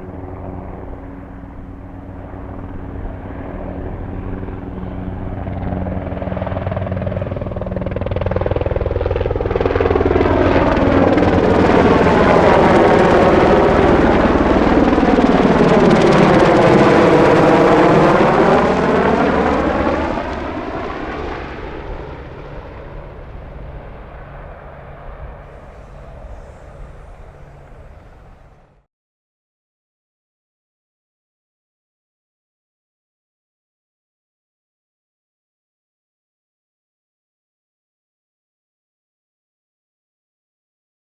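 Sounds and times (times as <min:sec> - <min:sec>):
helicopter passing by: 0:00.0 - 0:28.9.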